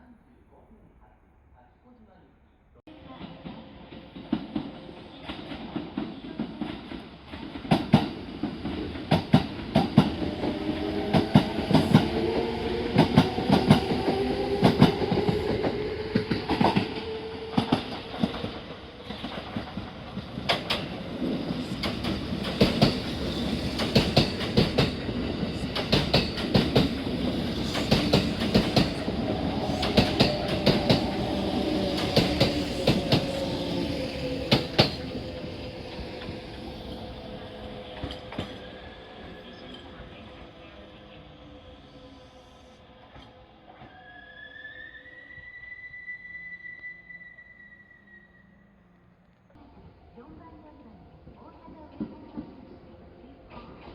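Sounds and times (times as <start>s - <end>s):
train motor hum: 7.0s - 43.3s
train wheels clattering over rail joints: 17.6s - 33.4s.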